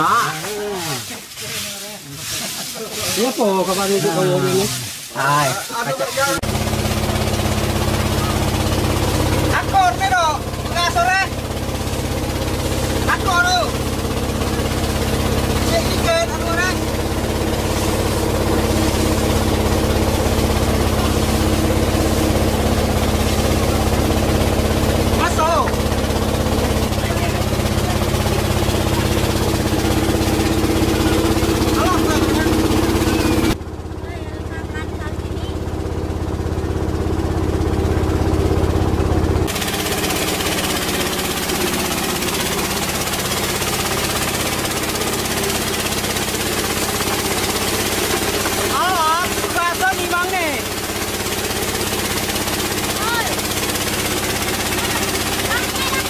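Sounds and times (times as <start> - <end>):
coffee huller motor chattering: 0.0 - 56.0
low machine hum: 0.0 - 56.0
small engine chugging: 0.0 - 56.0.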